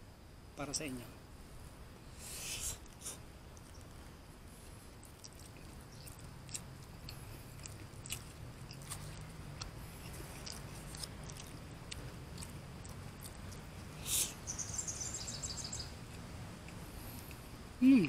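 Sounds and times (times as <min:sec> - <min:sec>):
breathy hiss: 0:02.0 - 0:03.3, 0:13.8 - 0:14.5
person chewing food: 0:02.8 - 0:14.3, 0:16.1 - 0:17.5.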